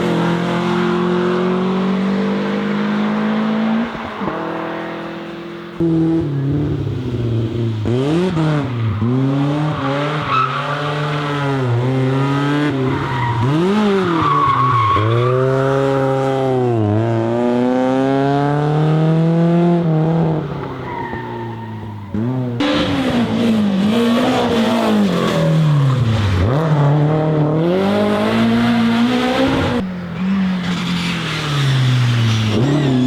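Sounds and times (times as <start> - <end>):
car engine revving: 0.0 - 21.1, 21.8 - 33.0.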